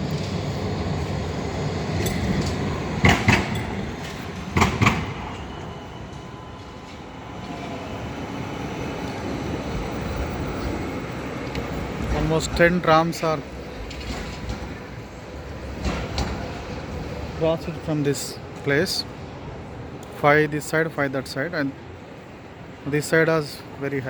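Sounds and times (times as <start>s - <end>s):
wheels clacking over rails: 0.0s - 18.6s
tram rumbling: 0.0s - 24.0s.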